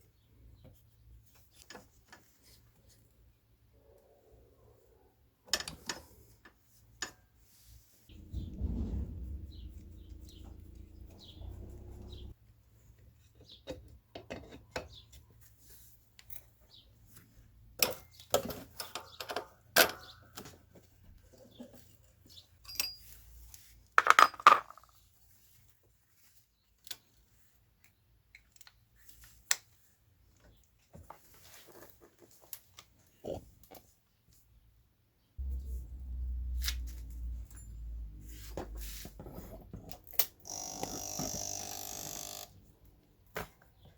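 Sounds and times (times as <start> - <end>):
low steady drone: 8.1 - 12.3, 35.4 - 38.2
metallic clinks of tools: 22.6 - 23.2.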